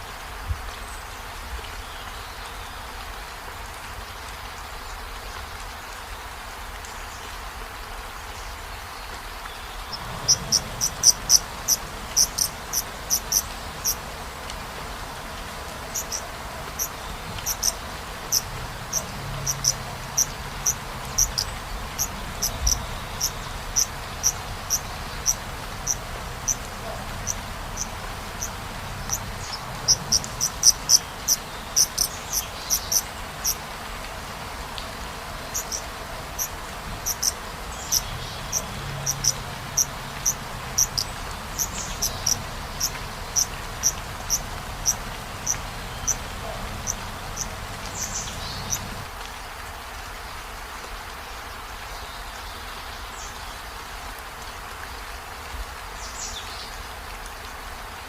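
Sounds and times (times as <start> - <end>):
steady hiss: 0.0 - 50.2
insect chirping: 9.8 - 14.3, 14.9 - 33.7, 35.3 - 49.1.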